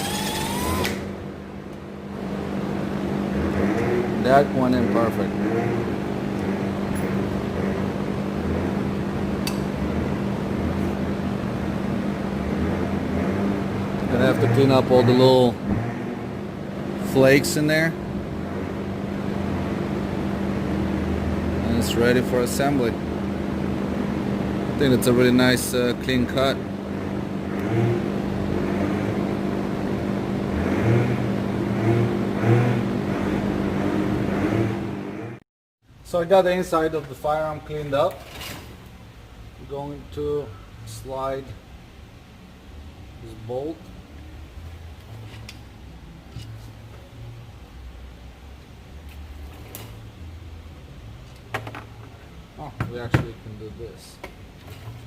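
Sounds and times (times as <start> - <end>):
low machine surges: 0.0 - 35.4
machine hum: 0.0 - 35.4.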